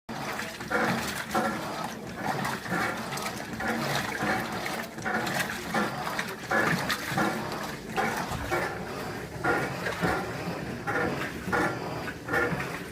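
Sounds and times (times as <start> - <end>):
washing machine sloshing: 0.1 - 12.9.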